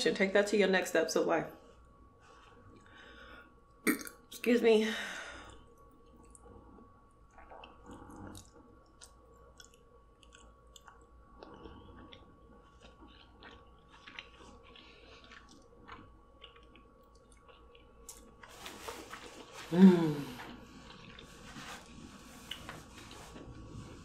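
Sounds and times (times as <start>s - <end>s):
chewing with wet mouth clicks: 7.3s - 18.5s.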